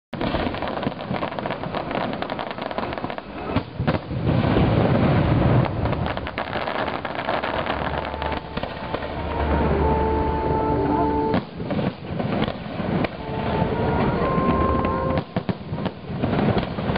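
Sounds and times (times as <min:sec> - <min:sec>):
fireworks crackling and booming: 0:00.1 - 0:16.9
steady tones: 0:07.4 - 0:11.6.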